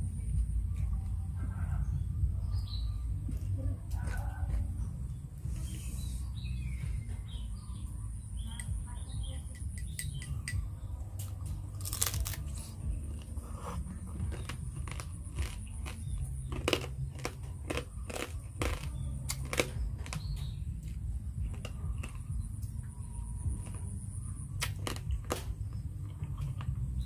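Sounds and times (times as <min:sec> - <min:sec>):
crab shell crunching: 0:11.8 - 0:13.4, 0:14.1 - 0:22.4, 0:24.6 - 0:26.8.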